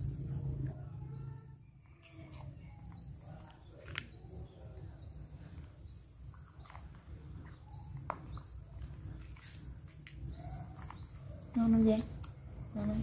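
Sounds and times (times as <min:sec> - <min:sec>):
low steady rumble: 0:00.0 - 0:03.8
bird chirping: 0:00.0 - 0:13.0.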